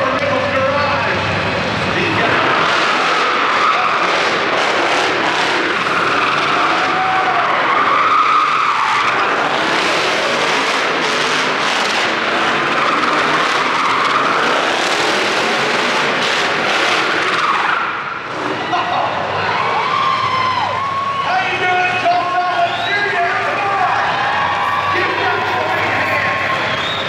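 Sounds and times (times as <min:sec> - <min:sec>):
tyres squealing on concrete: 0:02.0 - 0:17.9, 0:23.3 - 0:27.0
vehicle engine running: 0:09.2 - 0:17.4, 0:23.4 - 0:27.0.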